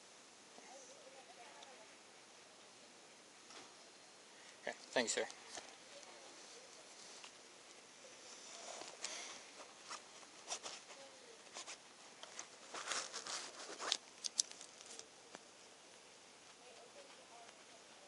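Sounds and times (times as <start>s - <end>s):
soft rustling: 4.4s - 18.0s.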